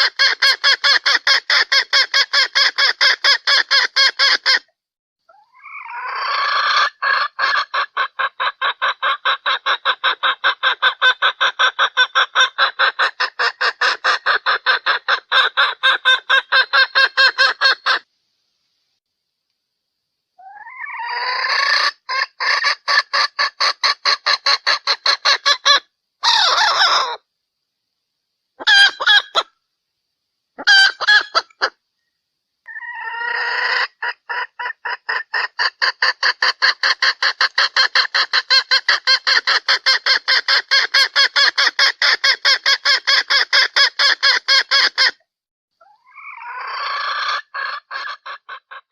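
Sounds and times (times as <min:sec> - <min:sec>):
junglefowl clucking: 0:00.0 - 0:04.6, 0:05.3 - 0:18.1, 0:20.4 - 0:27.2, 0:28.6 - 0:29.5, 0:30.6 - 0:31.8, 0:32.7 - 0:45.2, 0:45.8 - 0:48.9.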